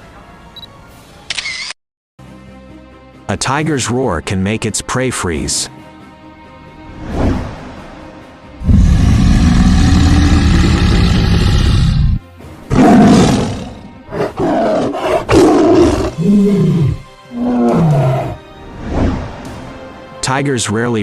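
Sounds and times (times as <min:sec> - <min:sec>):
music: 0:00.0 - 0:21.0
tiger roaring and growling: 0:08.6 - 0:18.4.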